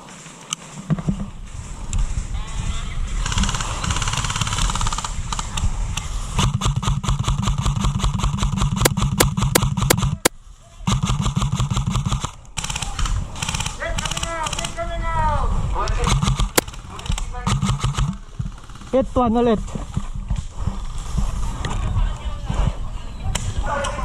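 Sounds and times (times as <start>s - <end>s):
airsoft guns firing full auto: 10.9s - 14.8s, 16.2s - 19.1s.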